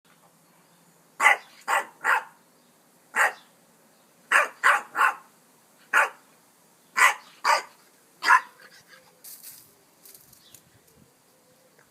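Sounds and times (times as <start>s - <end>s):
puppy barking: 1.2s - 2.4s, 3.2s - 3.4s, 4.3s - 5.3s, 5.9s - 6.2s, 7.0s - 8.7s.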